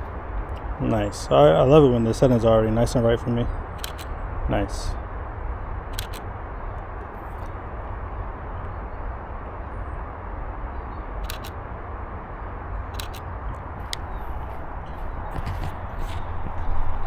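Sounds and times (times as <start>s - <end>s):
steady low rumble: 0.0s - 17.0s
camera shutter double click: 3.8s - 4.1s, 6.0s - 6.3s, 11.2s - 11.6s, 13.0s - 13.3s.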